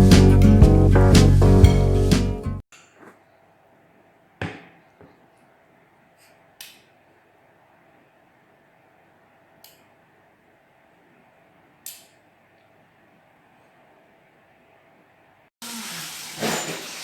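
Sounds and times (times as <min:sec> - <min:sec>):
kitchen utensils and dishes clinking: 0:16.0 - 0:17.0.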